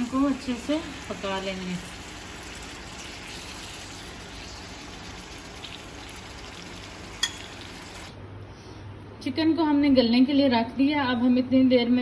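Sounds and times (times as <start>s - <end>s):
chicken sizzling in oil: 0.0s - 8.1s.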